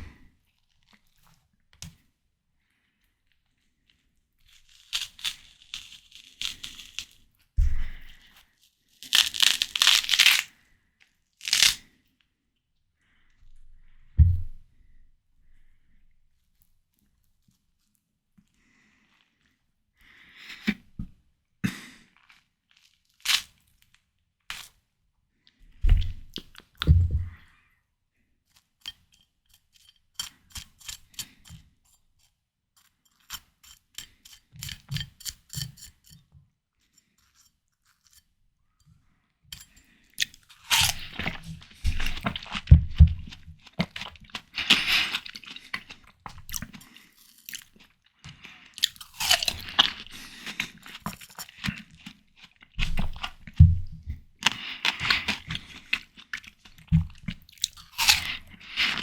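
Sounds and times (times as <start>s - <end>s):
crunching bites: 4.5s - 7.2s, 9.0s - 10.5s, 11.4s - 11.9s, 40.2s - 59.0s
chewing watermelon: 39.6s - 59.0s.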